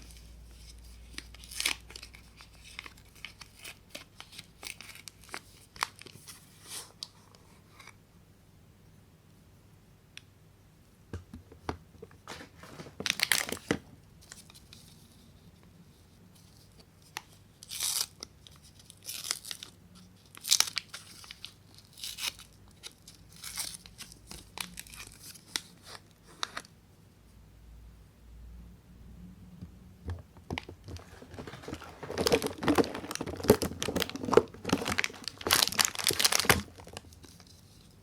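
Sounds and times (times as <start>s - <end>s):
wrappers tearing and crinkling: 0.0s - 6.4s, 12.3s - 14.6s, 17.6s - 26.7s, 30.9s - 37.9s.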